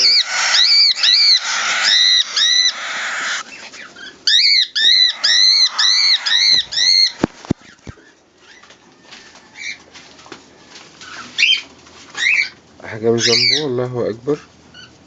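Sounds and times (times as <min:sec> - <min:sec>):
pigeon squabs squeaking: 0:00.0 - 0:08.7.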